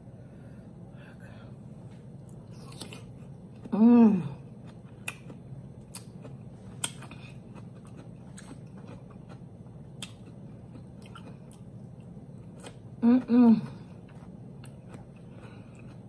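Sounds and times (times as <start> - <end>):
low room noise: 0.0 - 16.0
person chewing food: 1.9 - 13.0, 13.7 - 16.0
person humming: 3.7 - 4.4, 13.0 - 13.8.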